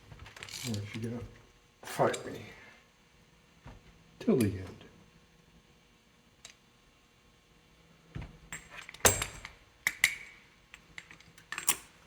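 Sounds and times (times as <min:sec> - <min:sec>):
metal tools clinking and knocking: 0:11.0 - 0:11.9.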